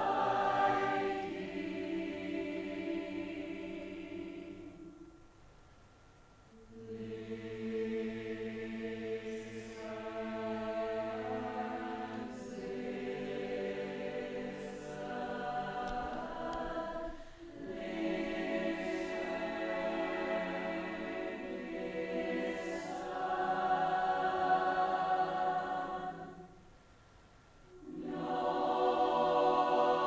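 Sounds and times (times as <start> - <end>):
choir singing held chords: 0.0 - 5.4, 6.5 - 26.7, 27.7 - 30.0.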